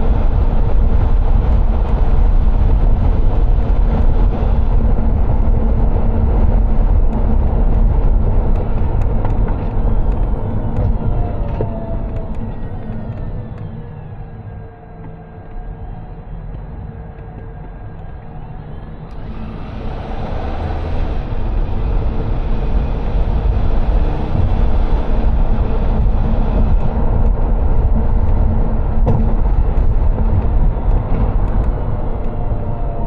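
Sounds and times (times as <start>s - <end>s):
car engine rumble: 0.0s - 33.0s
road noise: 0.0s - 33.0s.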